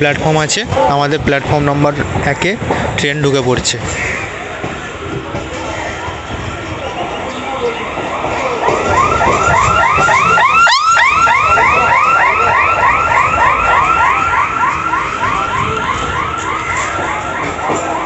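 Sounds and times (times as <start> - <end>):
electronic warbling alarm: 8.6 - 18.0.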